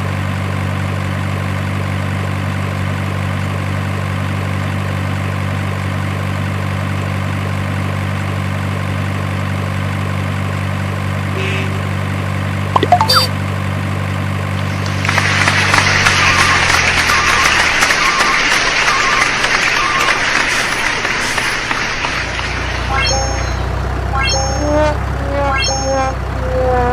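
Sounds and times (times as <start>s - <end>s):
heavy truck engine idling: 14.2s - 24.1s.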